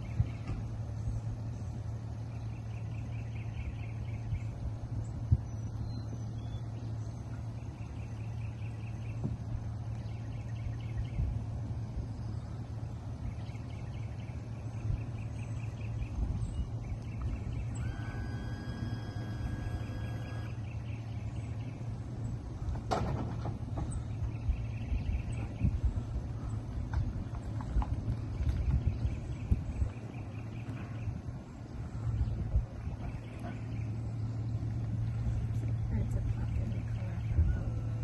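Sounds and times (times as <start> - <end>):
bird chirping: 0.0 - 11.3, 12.2 - 22.4
motor humming: 0.0 - 38.0.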